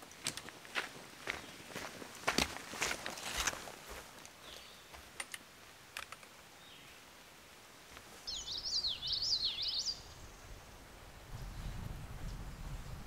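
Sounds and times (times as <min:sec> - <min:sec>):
songbird warbling: 0:08.2 - 0:10.5.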